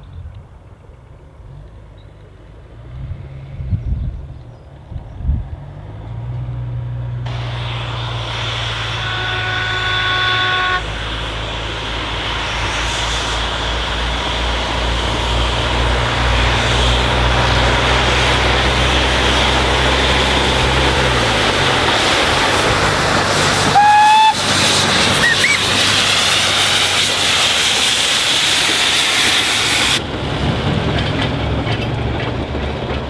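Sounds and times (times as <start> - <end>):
train engine hum: 0.0 - 33.0
train running noise: 4.7 - 33.0
train whistle toot: 7.7 - 11.0, 23.7 - 25.9.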